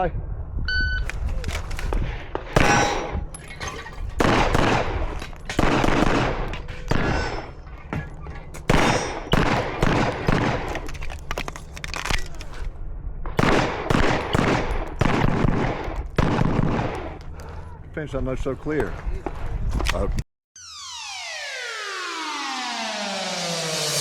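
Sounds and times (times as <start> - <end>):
gunshots echoing: 2.1 - 3.3, 4.2 - 7.5, 8.6 - 10.9, 13.2 - 17.2.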